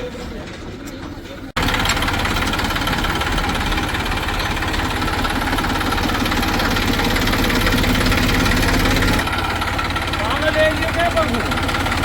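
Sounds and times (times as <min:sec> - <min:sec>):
large diesel engine knocking: 0:00.2 - 0:12.0.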